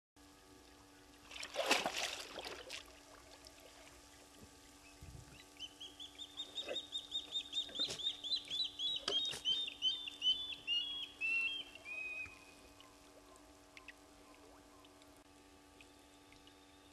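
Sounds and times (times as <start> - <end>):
bird whistling: 5.6 - 12.6.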